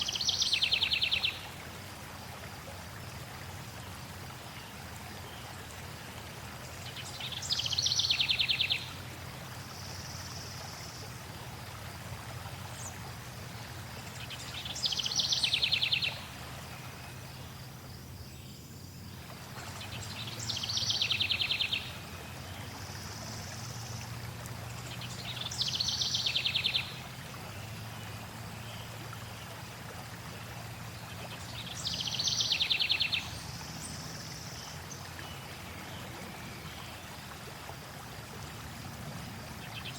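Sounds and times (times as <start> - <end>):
songbird trilled song: 0.0 - 1.5, 6.8 - 9.0, 14.1 - 18.8, 19.6 - 24.0, 24.9 - 27.8, 31.0 - 37.1
flowing water: 0.0 - 39.9.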